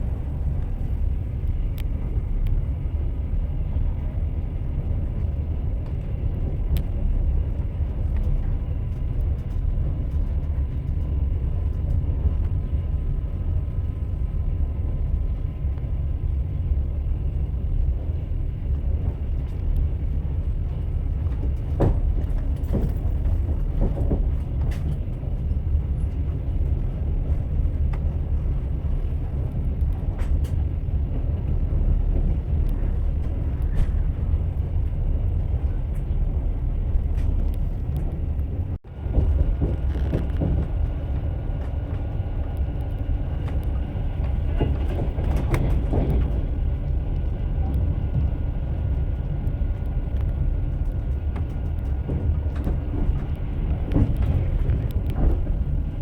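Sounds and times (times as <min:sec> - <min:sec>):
train rumbling: 0:00.0 - 0:56.0
wheels clacking over rail joints: 0:29.1 - 0:56.0.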